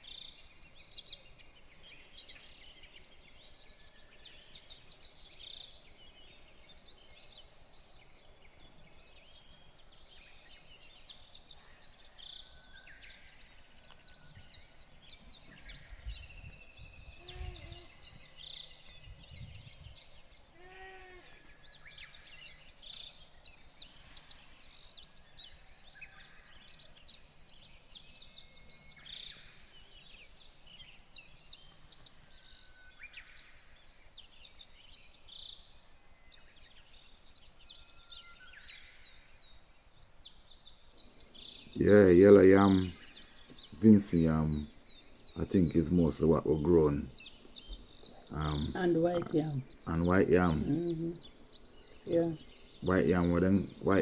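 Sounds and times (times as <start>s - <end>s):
birds chirping and singing: 0.0s - 54.0s
lower animal call: 17.1s - 18.2s, 20.5s - 21.5s.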